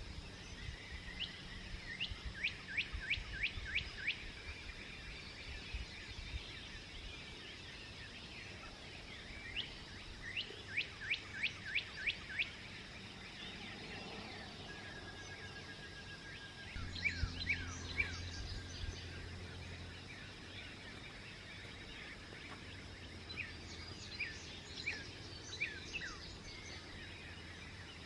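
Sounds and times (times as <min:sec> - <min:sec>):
songbird singing: 0:00.0 - 0:28.0
low background rumble: 0:16.7 - 0:28.0.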